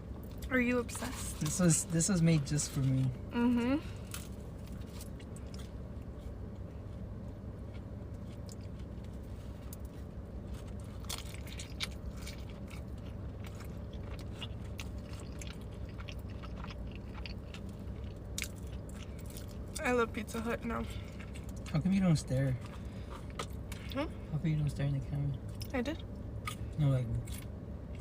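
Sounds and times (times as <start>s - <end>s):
steady low hum: 0.0s - 28.0s
chewing with mouth clicks: 7.7s - 19.8s, 21.0s - 21.8s, 22.6s - 24.0s.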